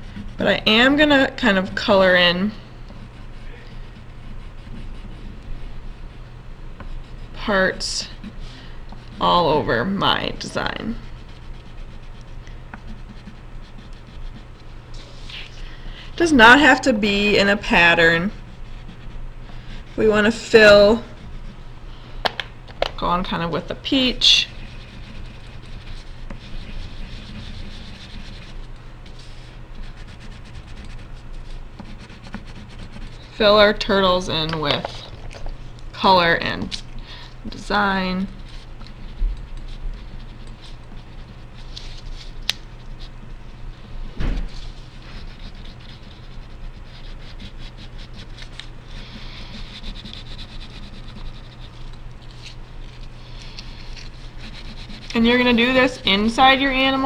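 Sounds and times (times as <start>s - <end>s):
crayon scratching on paper: 0.0s - 43.9s, 44.5s - 57.0s
low background hum: 0.0s - 57.0s
dull thump: 44.1s - 44.6s.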